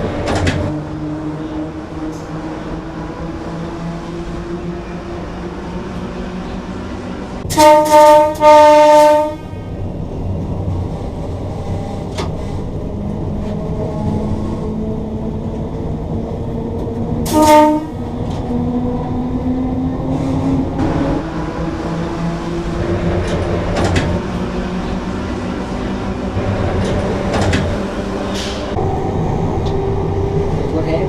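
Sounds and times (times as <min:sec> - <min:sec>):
train cab rumble: 0:00.0 - 0:31.0
train horn blasts: 0:07.4 - 0:09.8, 0:17.2 - 0:18.0.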